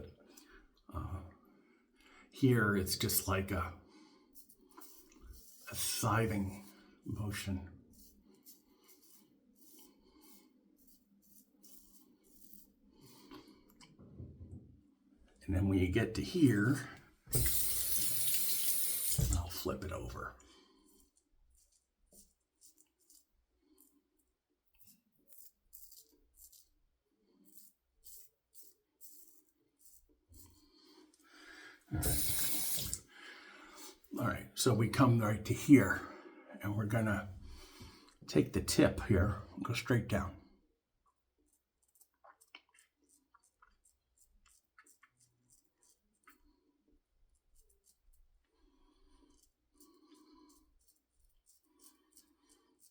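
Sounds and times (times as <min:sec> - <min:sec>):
razor scraping stubble: 0:17.3 - 0:20.1, 0:24.7 - 0:31.2, 0:32.0 - 0:33.0, 0:41.4 - 0:46.4
razor cutting stubble: 0:32.0 - 0:33.0.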